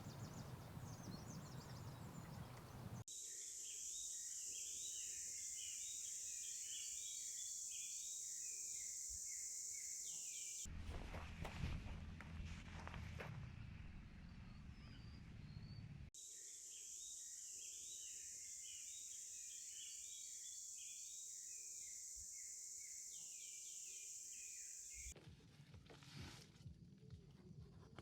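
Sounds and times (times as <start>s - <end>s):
birds chirping and calling: 0.0s - 3.0s
low rumbling: 10.7s - 16.1s.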